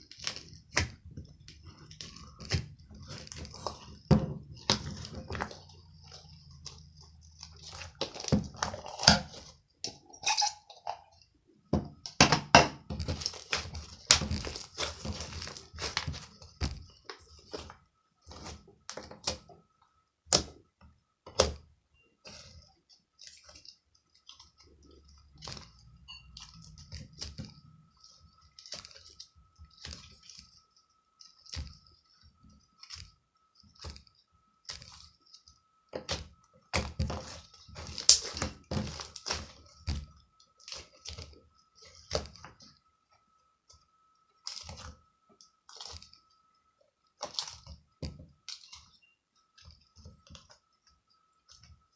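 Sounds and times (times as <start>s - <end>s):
faint steady high tone: 25.8s - 28.3s, 47.9s - 51.9s.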